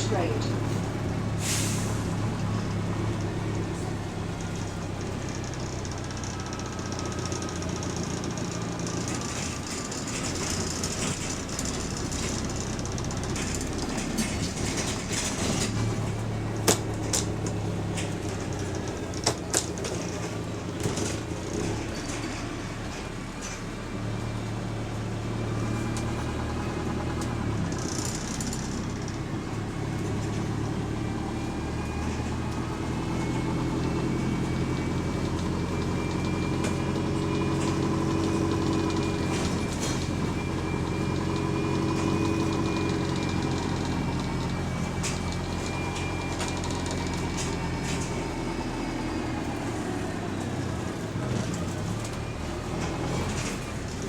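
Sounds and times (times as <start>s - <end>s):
bus engine drone: 0.0s - 54.0s
engine whine: 0.0s - 54.0s
rattles and clicks: 2.4s - 23.8s, 25.9s - 30.8s.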